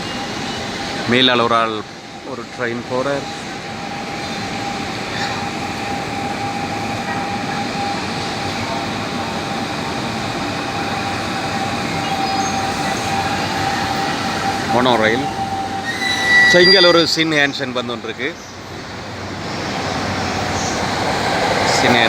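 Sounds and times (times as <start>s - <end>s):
train wheels rumbling on track: 0.0s - 22.0s
high-pitched whine: 4.3s - 17.4s.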